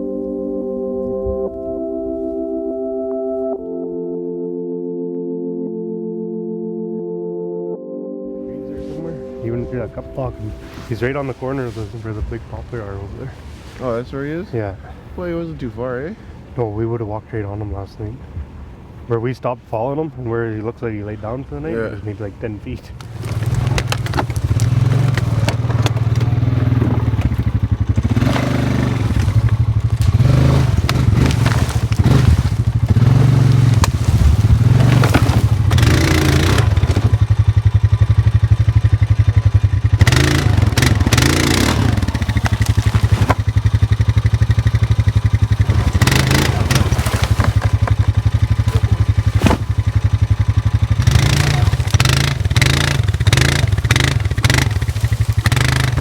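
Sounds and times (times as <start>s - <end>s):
clattering and scraping: 23.0s - 37.3s, 40.1s - 50.2s
small vehicle engine running: 23.0s - 56.0s.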